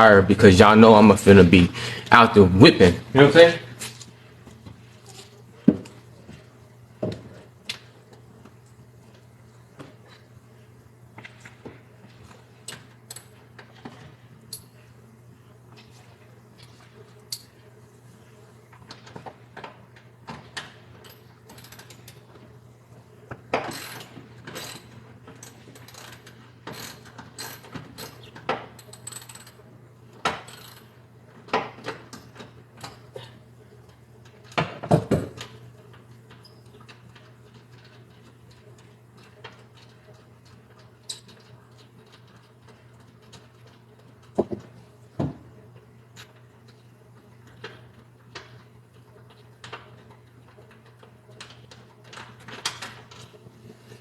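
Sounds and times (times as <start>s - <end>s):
steady low hum: 0.0s - 20.3s.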